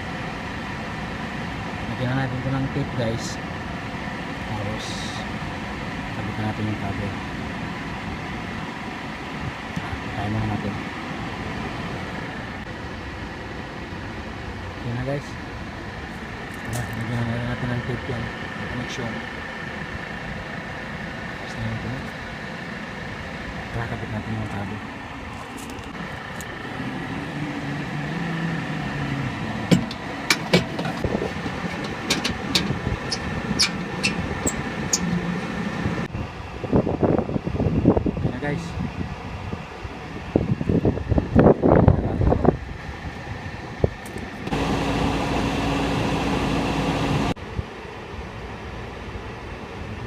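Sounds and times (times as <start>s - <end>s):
machinery hum: 0.0s - 38.2s, 39.0s - 50.0s
sharp clicks and knocks: 29.7s - 35.1s.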